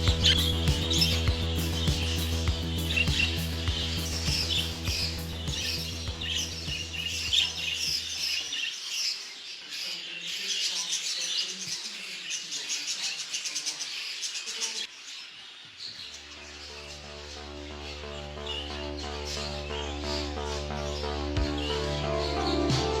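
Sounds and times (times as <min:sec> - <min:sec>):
background music: 0:00.0 - 0:08.4, 0:16.4 - 0:23.0
small birds chirping: 0:00.0 - 0:23.0.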